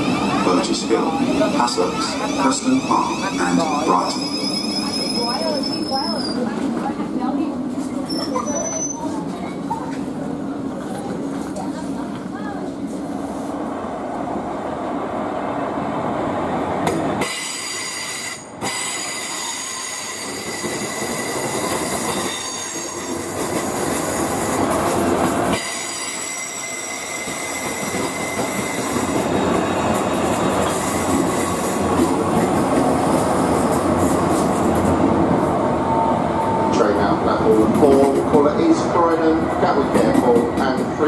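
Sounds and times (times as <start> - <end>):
high metallic wheel squeal: 2.3 - 6.4, 8.0 - 9.1, 17.3 - 23.1, 25.6 - 29.1
train wheels rumbling on rails: 15.9 - 41.0.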